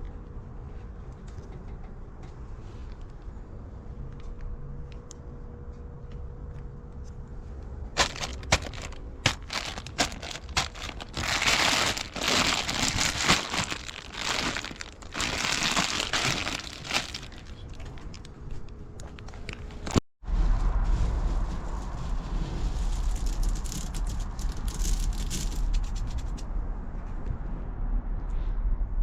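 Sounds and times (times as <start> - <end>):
plastic bags crinkling: 8.0 - 18.3.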